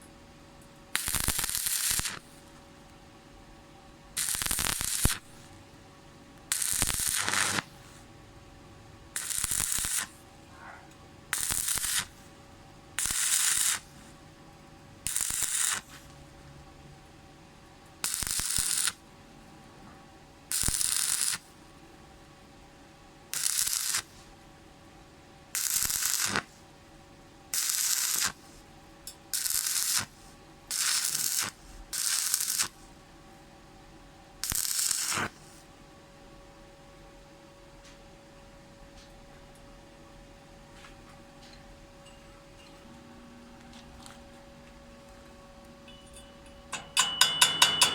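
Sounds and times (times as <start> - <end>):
steady low hum: 0.0 - 18.0, 35.3 - 47.9
welding arc crackling: 1.0 - 2.3, 4.2 - 5.5, 6.4 - 7.9, 9.2 - 10.2, 11.3 - 12.2, 13.0 - 14.0, 15.0 - 16.0, 18.0 - 19.0, 20.5 - 21.4, 23.3 - 24.1, 25.6 - 26.5, 27.5 - 28.5, 29.3 - 32.8, 34.4 - 35.4.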